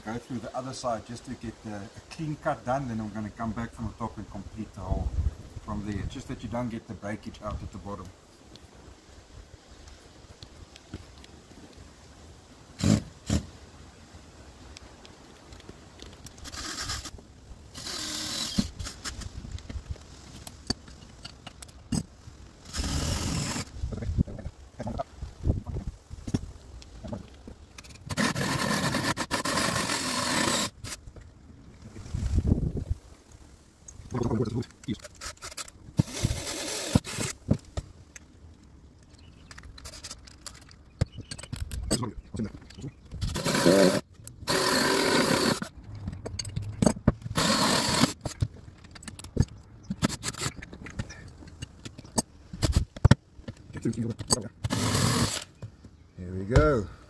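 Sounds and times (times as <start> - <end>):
power drill drilling: 16.4 - 17.1, 17.7 - 19.0, 22.7 - 23.7, 28.1 - 31.0, 35.4 - 37.4, 43.3 - 45.7, 47.4 - 48.2, 54.6 - 55.5
scraping rustle: 25.7 - 38.0, 39.0 - 53.0.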